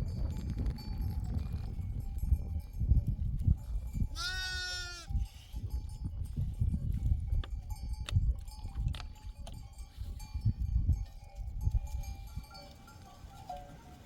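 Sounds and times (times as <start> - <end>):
animal bells clinking: 0.0 - 14.0.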